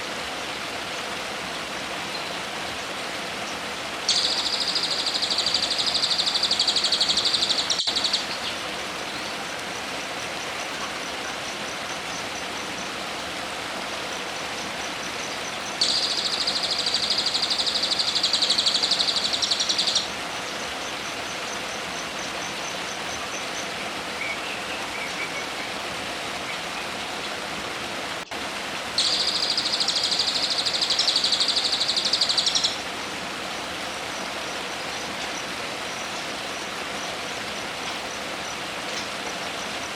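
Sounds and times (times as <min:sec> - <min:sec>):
faint ticking bird calls: 0:02.1 - 0:27.5, 0:29.0 - 0:39.9
songbird buzzing trill: 0:04.1 - 0:08.5.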